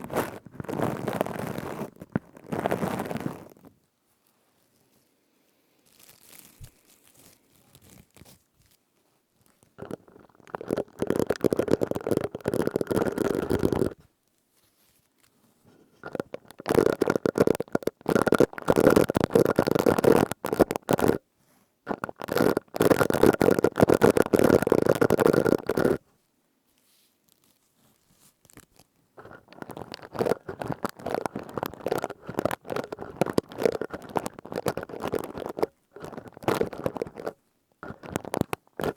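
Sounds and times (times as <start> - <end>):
plastic scourer crackling: 9.8 - 14.0, 16.0 - 21.2, 21.9 - 26.0, 28.5 - 38.9.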